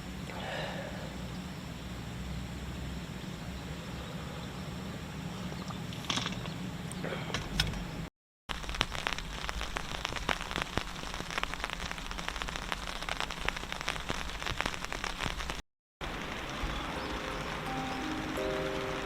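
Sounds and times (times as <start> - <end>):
rain pattering: 8.5 - 19.0.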